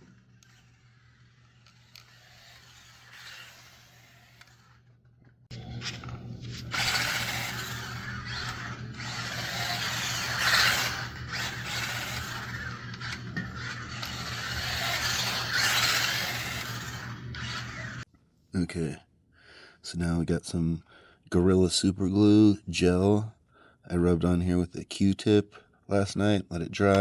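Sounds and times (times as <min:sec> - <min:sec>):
toy car motor whirring: 0:00.0 - 0:18.1.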